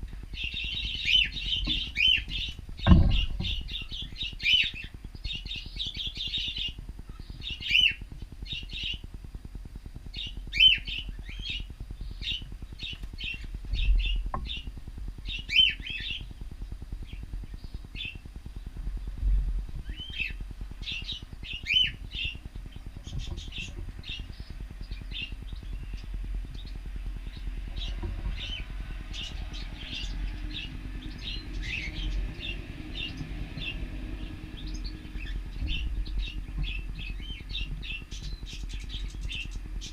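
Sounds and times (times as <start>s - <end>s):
low steady hum: 0.0s - 39.9s
cockatiels chirping and calling: 0.3s - 9.0s, 10.2s - 14.6s, 15.3s - 16.3s, 19.8s - 22.4s.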